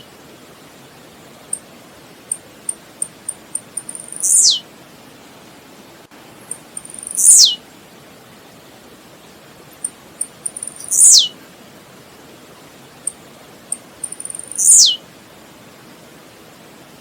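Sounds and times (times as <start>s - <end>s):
faint steady hiss: 0.0s - 17.0s
bird song with buzzy note: 3.0s - 4.6s, 6.5s - 7.6s, 10.2s - 11.3s, 14.0s - 15.0s.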